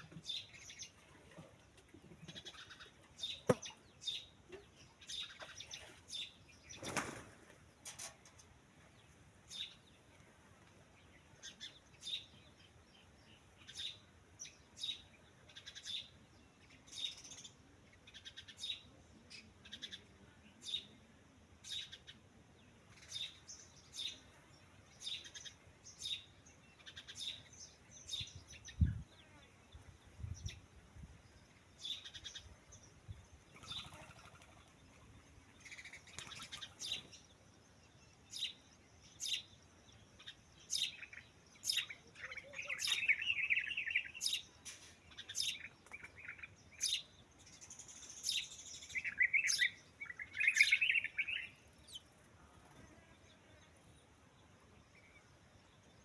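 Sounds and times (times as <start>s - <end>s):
birds chirping: 21.6s - 56.0s.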